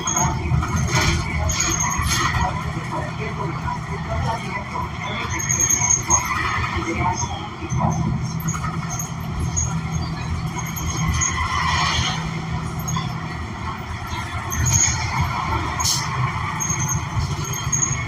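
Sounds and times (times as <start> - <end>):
bus engine running: 0.0 - 18.0
road noise: 0.0 - 18.0.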